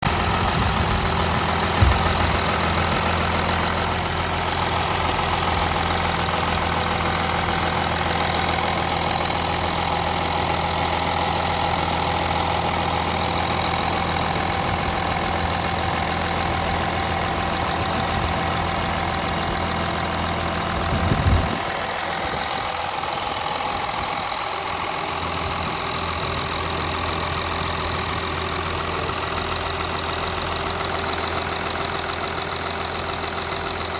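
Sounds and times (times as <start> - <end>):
engine idling: 0.0 - 33.9
brief thump: 1.6 - 3.1.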